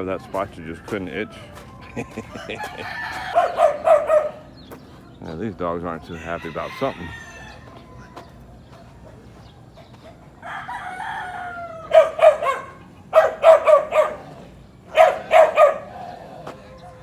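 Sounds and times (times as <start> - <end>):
dogs barking: 0.0 - 5.4, 6.2 - 17.0
rooster crowing: 0.4 - 4.4, 6.0 - 8.4, 10.4 - 17.0.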